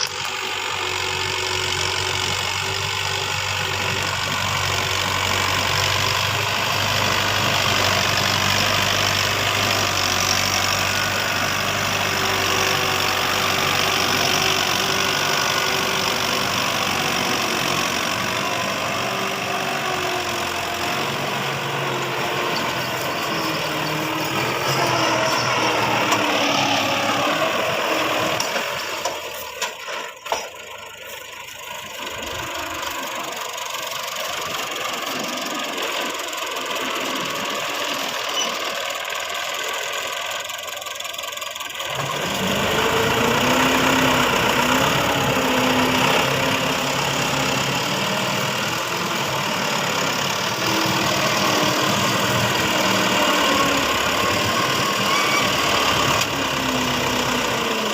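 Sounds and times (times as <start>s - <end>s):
tractor engine running: 0.0s - 57.9s.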